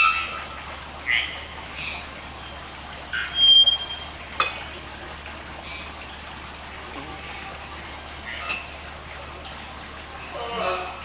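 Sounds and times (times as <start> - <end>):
bird whistle: 3.2 - 4.1.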